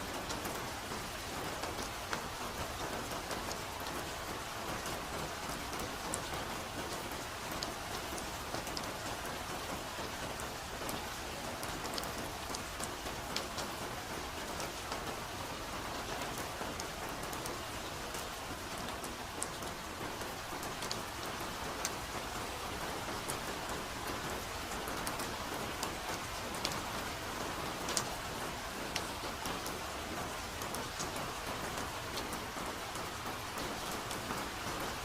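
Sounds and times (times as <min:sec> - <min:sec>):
raindrops pattering: 0:00.0 - 0:35.0
soft rain hiss: 0:00.0 - 0:35.0.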